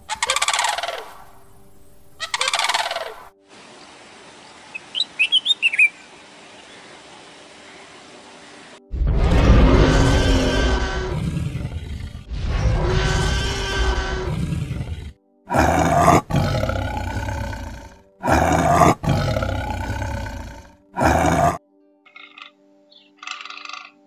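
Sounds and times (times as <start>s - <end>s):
background music: 0.0s - 3.6s, 7.5s - 24.0s
dinosaur roar: 9.0s - 21.6s
tiger roaring: 9.2s - 21.6s.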